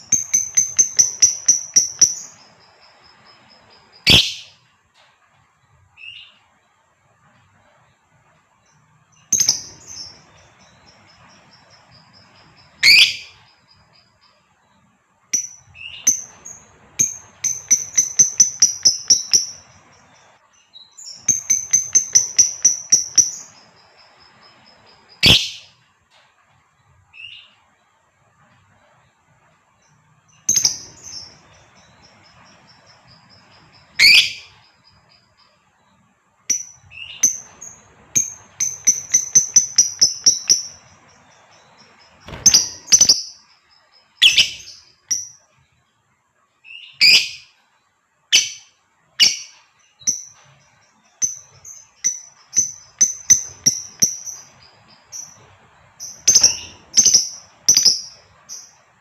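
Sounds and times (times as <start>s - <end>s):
lovebird chirping and chattering: 0.0s - 4.6s, 9.2s - 14.1s, 15.3s - 25.7s, 30.3s - 35.4s, 36.5s - 45.4s, 46.7s - 47.5s, 48.3s - 58.9s.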